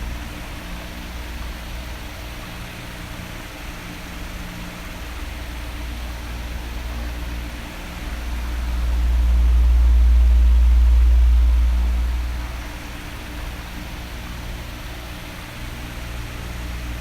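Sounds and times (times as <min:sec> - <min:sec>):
electric fan hissing: 0:00.0 - 0:15.4
low rumble: 0:07.6 - 0:14.1.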